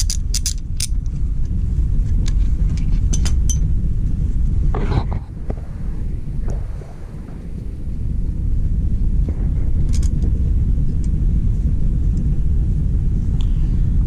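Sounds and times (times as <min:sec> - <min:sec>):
wrench clicking on engine: 0:00.0 - 0:01.1
steady low rumble: 0:00.0 - 0:14.0.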